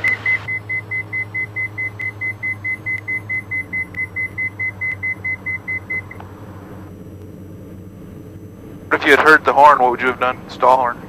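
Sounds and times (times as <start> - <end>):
cockpit warning beeps: 0.0 - 6.3
aircraft engines droning: 0.0 - 11.0.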